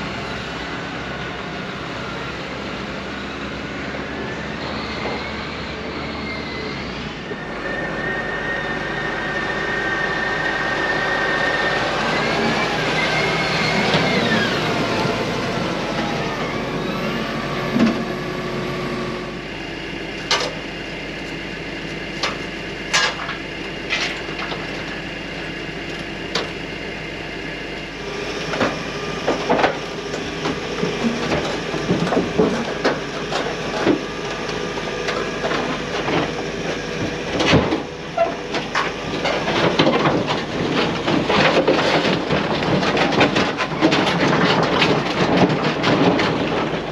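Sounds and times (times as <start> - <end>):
heavy diesel machinery running: 0.0 - 46.9.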